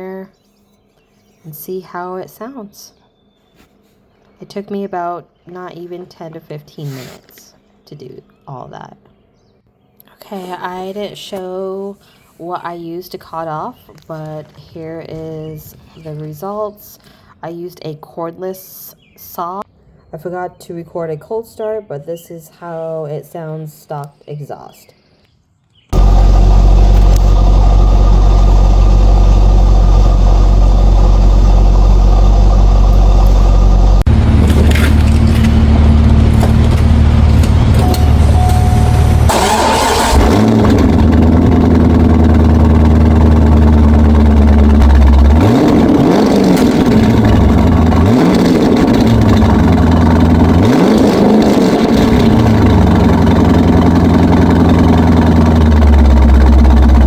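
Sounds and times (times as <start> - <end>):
car engine revving: 26.0 - 57.0
car exhaust idling: 26.0 - 57.0.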